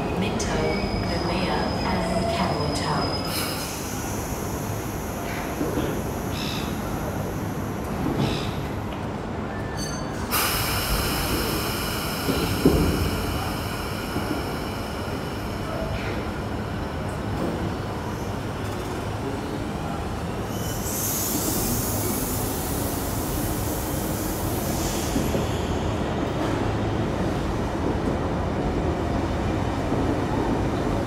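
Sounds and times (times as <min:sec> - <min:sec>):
air hiss: 0:10.3 - 0:17.1.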